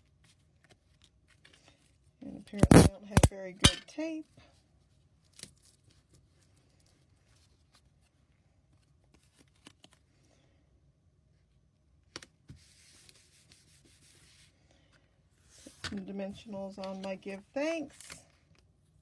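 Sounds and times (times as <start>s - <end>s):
paper and card being handled: 2.6s - 3.3s.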